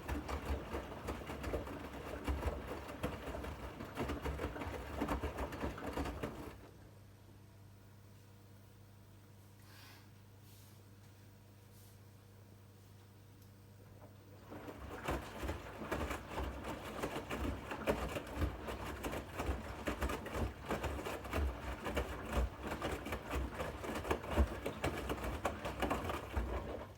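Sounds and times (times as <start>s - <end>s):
laundry tumbling: 0.0s - 6.6s, 14.4s - 26.9s.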